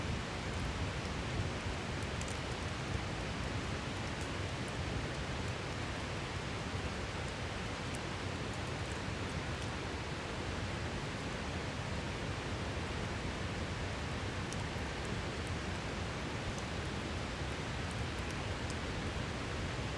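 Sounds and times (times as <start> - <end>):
campfire crackling: 12.0 - 19.9.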